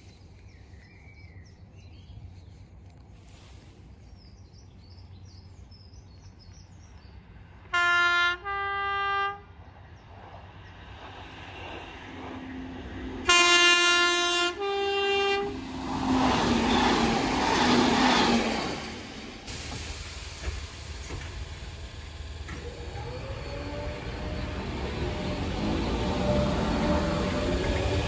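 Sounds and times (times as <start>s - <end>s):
train rushing past: 7.0s - 28.0s
two-note train horn: 7.7s - 9.5s, 13.0s - 16.2s.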